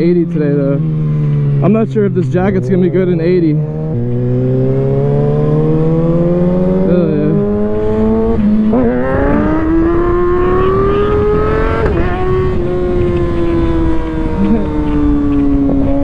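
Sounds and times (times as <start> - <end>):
motorcycle engine accelerating: 0.0 - 16.0
wind rush: 3.7 - 16.0.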